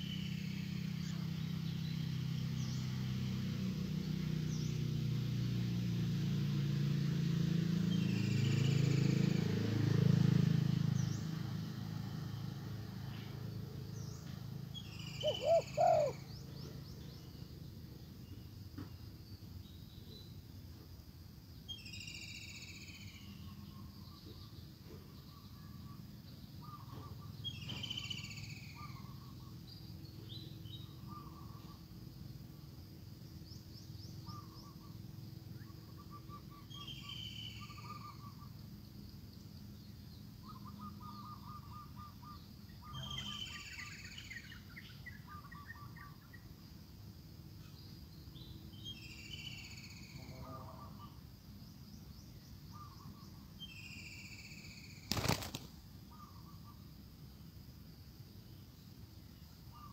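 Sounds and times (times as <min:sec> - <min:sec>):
high falling bird chirp: 0:14.8 - 0:16.8.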